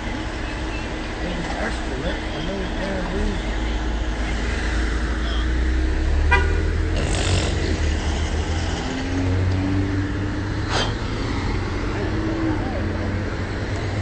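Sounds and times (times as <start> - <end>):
vehicle engine rumbling: 0.0 - 14.0
car horn toot: 6.3 - 6.7.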